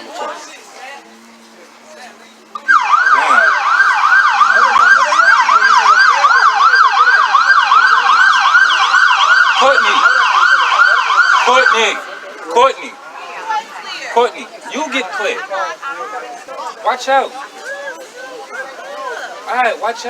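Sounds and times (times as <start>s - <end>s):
emergency siren yelping: 2.5s - 12.4s.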